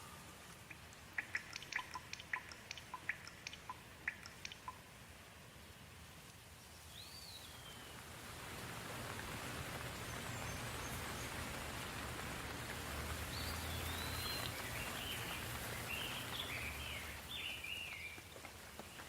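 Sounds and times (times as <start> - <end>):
bird chirping: 0.0 - 4.9, 6.7 - 8.0, 13.3 - 18.2
soft rain falling: 0.0 - 19.0.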